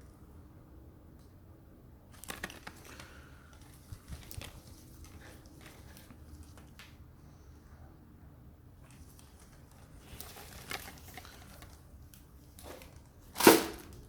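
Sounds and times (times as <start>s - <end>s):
packaging rustling and crinkling: 2.1s - 6.9s, 8.9s - 14.0s.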